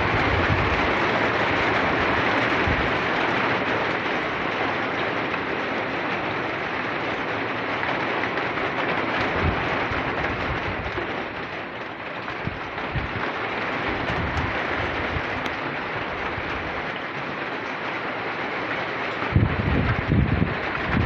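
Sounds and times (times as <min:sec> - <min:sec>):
low rumbles: 0:12.2 - 0:16.8.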